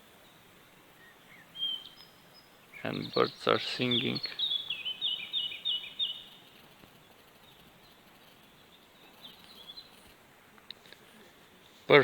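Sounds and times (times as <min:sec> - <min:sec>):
faint outdoor hiss: 0:00.0 - 0:12.0
bird chirps: 0:01.0 - 0:10.0.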